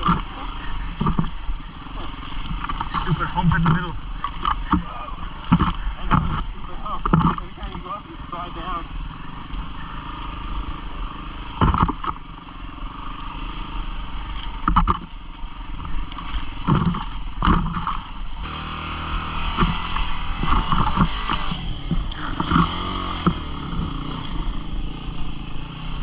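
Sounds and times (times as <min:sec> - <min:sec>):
motorcycle engine running: 0:00.0 - 0:26.0
motorcycle knocks and clatters: 0:01.0 - 0:01.4, 0:02.4 - 0:07.9, 0:11.6 - 0:12.4, 0:14.4 - 0:15.2, 0:15.8 - 0:18.3, 0:19.5 - 0:24.0.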